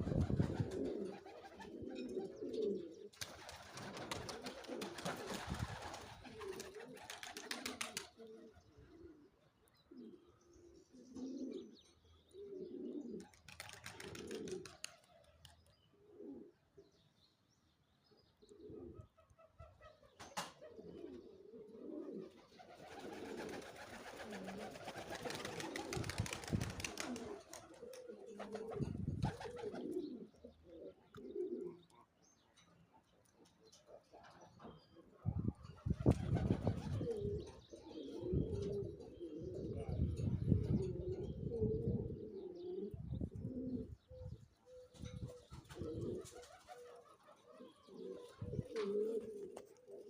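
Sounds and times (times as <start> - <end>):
wings rustling and flapping: 0.0 - 1.8, 3.1 - 8.2, 13.2 - 15.6, 22.4 - 30.0, 35.8 - 37.2, 45.3 - 47.4
pigeons cooing: 0.0 - 17.0, 18.4 - 32.4, 33.0 - 50.0.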